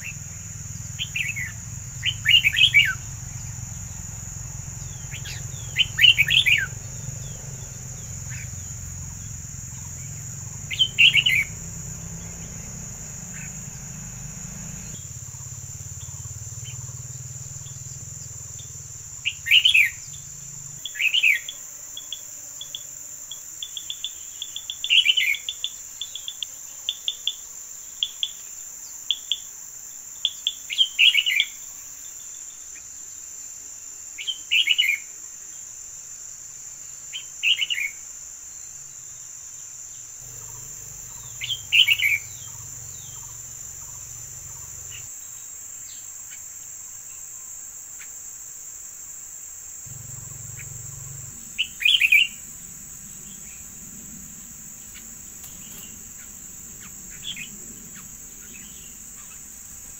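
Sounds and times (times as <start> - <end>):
bird chirps: 0.0 - 27.4, 40.2 - 46.4, 49.9 - 59.9
songbird singing: 0.0 - 35.8, 36.4 - 48.6, 49.6 - 59.9
high insect drone: 0.0 - 59.9.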